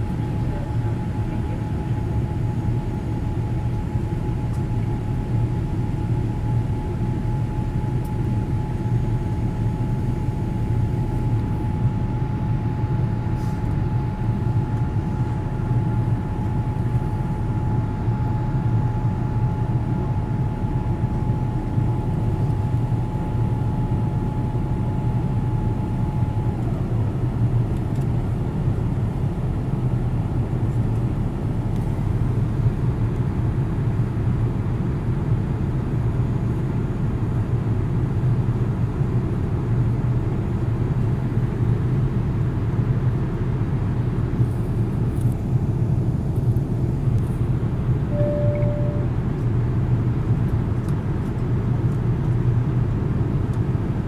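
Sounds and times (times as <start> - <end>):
jet engine rumble: 0.0 - 54.0
thin jet whine: 48.1 - 49.2.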